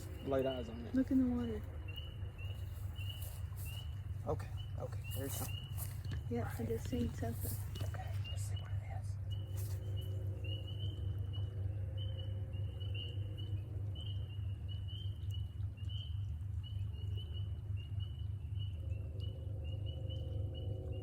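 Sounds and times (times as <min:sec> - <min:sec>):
frogs peeping in chorus: 0:00.0 - 0:21.0
steady low hum: 0:00.0 - 0:21.0.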